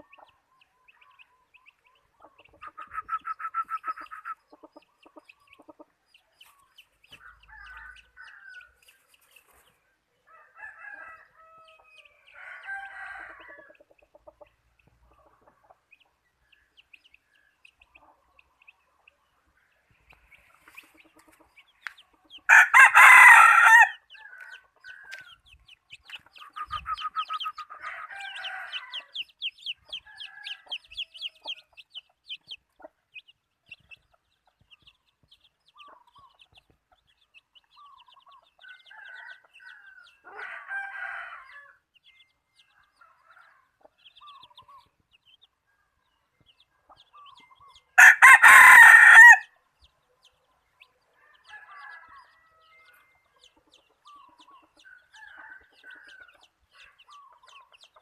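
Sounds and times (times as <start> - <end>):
rooster clucking calls: 2.2 - 5.9
rooster crowing: 10.3 - 13.7, 22.5 - 25.2, 27.8 - 29.2, 38.7 - 41.8, 48.0 - 49.5, 51.2 - 52.9.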